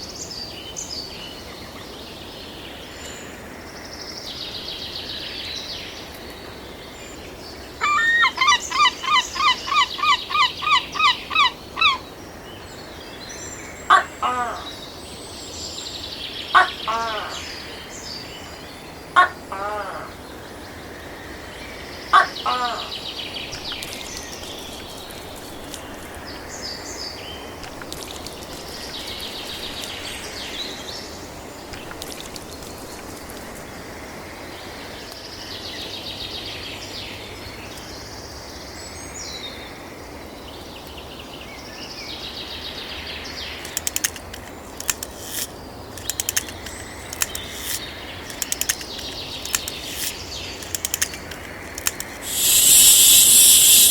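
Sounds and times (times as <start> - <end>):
loud rattling bird call: 7.8 - 12.1, 22.2 - 33.8, 43.5 - 53.9
small birds chirping: 22.2 - 33.8, 43.2 - 53.9
sharp clicks: 23.5 - 26.7, 27.6 - 30.8, 43.6 - 53.9.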